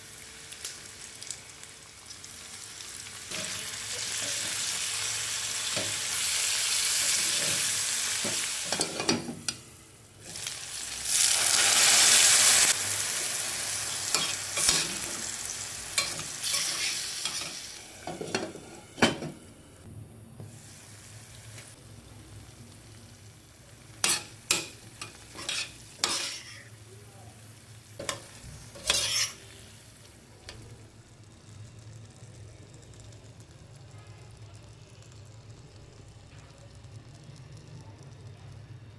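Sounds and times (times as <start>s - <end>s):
vegetables sizzling in hot oil: 0.0s - 19.5s, 20.5s - 37.8s
spatula scraping and clinking pan: 24.0s - 26.7s, 28.0s - 29.4s.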